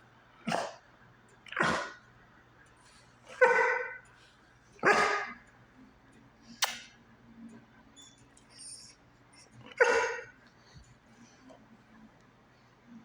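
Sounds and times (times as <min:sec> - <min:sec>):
dog barking: 0:03.4 - 0:04.0, 0:04.8 - 0:05.4, 0:09.8 - 0:10.3
sharp click: 0:06.6 - 0:06.9.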